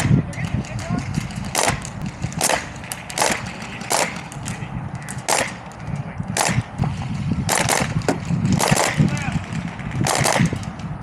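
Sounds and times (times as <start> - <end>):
steady low rumble: 0.0 - 11.0
airsoft gun sharp cracks: 1.4 - 6.7, 7.5 - 10.7.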